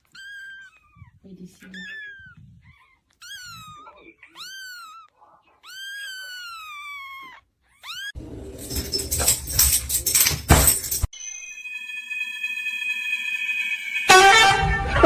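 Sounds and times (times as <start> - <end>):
cat meowing: 0.0 - 8.2
scuffling clatter with knocks: 8.2 - 11.1.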